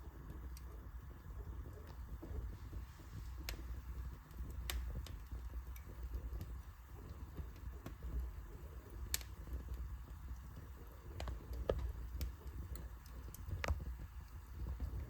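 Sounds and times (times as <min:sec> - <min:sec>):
fire flames rumbling: 0:00.0 - 0:15.0
logs crackling and popping: 0:00.0 - 0:15.0.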